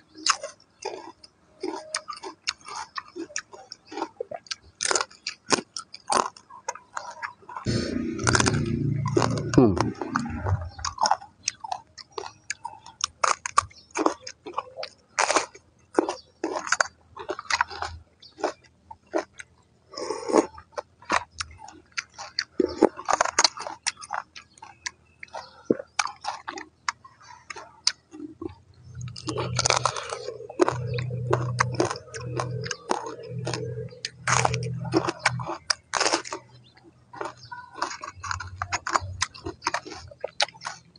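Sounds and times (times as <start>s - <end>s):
crunchy chewing: 0.0s - 40.9s
low steady hum: 7.7s - 11.6s.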